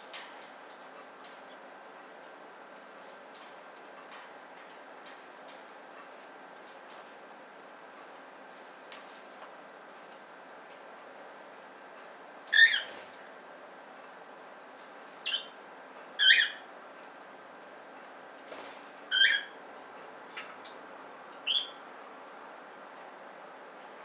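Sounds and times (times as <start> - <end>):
budgerigar chirping: 16.2 - 16.6.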